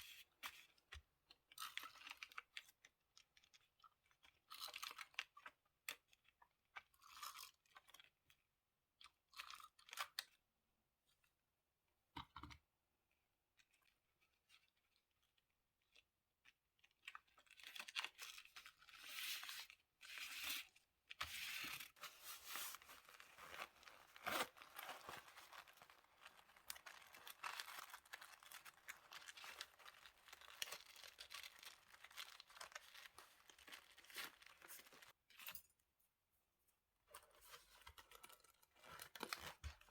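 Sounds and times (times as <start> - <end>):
paper rustling: 21.2 - 35.1.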